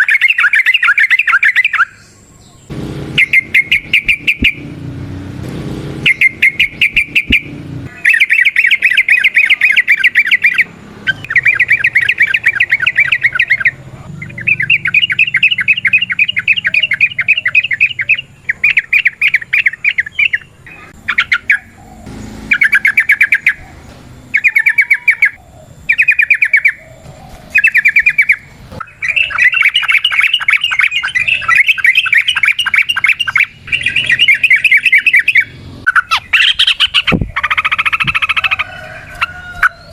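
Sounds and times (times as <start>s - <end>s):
bird chattering song: 0.0s - 4.8s, 6.0s - 39.9s.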